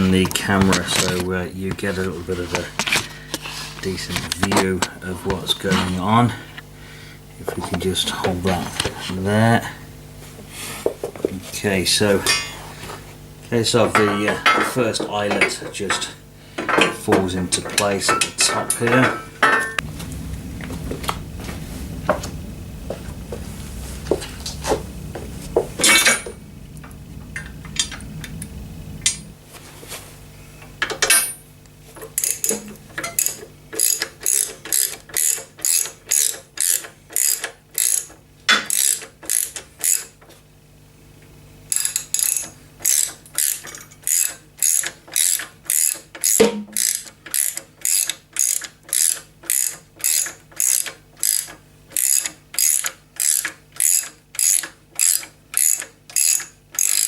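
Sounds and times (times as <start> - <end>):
scattered clicks and knocks: 13.8 - 21.2, 30.8 - 31.4, 32.0 - 40.4, 41.7 - 57.0
ratchet wrench clicking: 32.1 - 40.1, 41.7 - 57.0.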